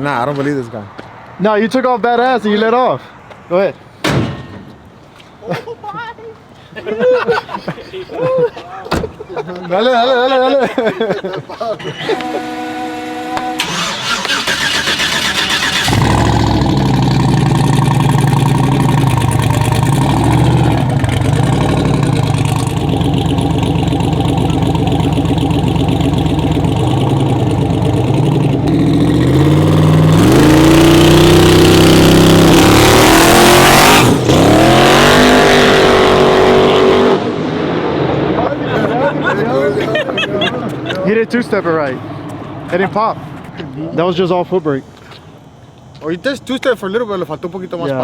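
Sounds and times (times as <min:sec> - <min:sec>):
truck engine revving: 0:12.2 - 0:39.4.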